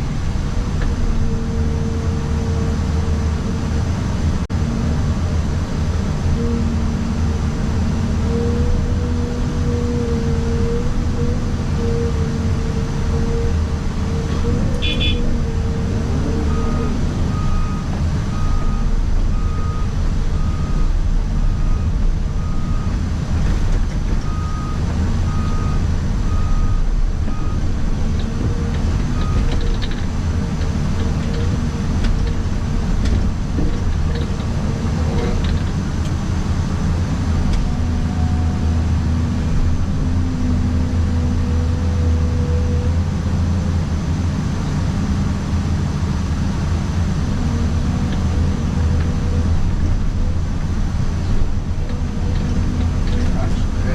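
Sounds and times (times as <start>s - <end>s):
excavator engine running: 0.0s - 53.9s
backup alarm beeping: 14.8s - 15.3s.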